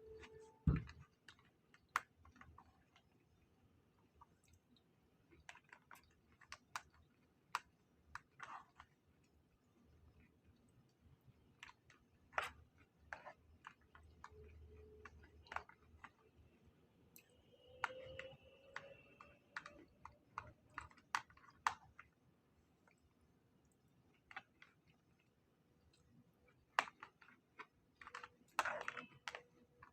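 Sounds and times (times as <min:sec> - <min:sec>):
small clicks and taps: 0:04.2 - 0:09.0, 0:17.2 - 0:22.2, 0:22.8 - 0:29.9.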